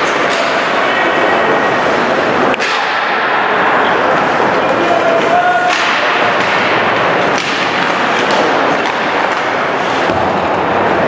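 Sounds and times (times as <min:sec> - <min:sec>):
steady rush of noise: 0:00.0 - 0:11.0
sticks and puck knocking: 0:05.2 - 0:10.3.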